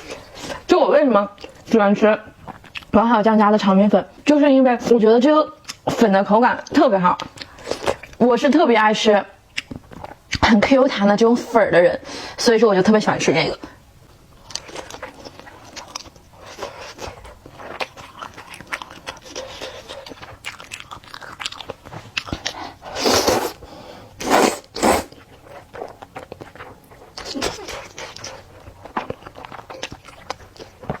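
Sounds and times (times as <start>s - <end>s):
wet chewing of noodles: 1.3s - 3.6s, 7.2s - 8.2s, 9.4s - 10.5s, 14.2s - 31.0s.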